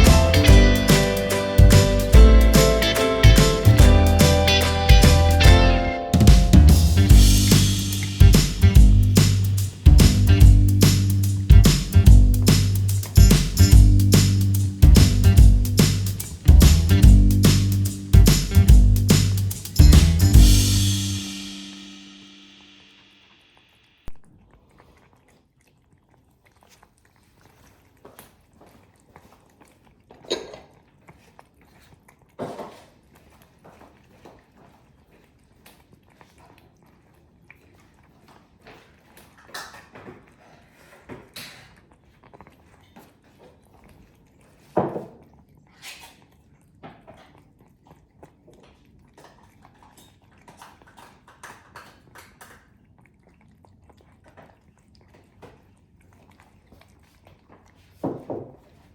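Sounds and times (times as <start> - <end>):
cat chewing crunchily: 24.4 - 39.2.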